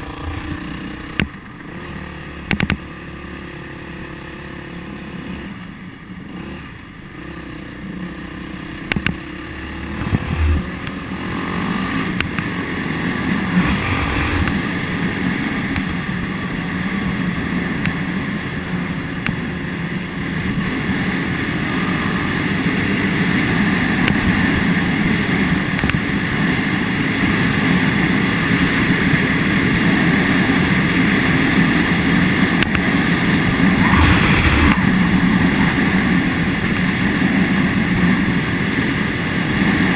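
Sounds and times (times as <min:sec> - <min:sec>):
wind rushing over microphone: 0:00.0 - 0:01.8, 0:09.8 - 0:17.3, 0:20.3 - 0:39.9
motorcycle engine running: 0:00.0 - 0:39.9.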